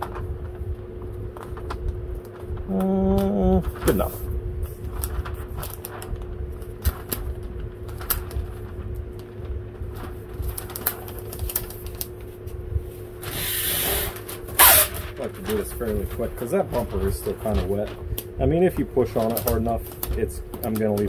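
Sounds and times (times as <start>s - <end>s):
steady hum: 0.0s - 21.0s
light clicks and taps: 18.2s - 21.0s.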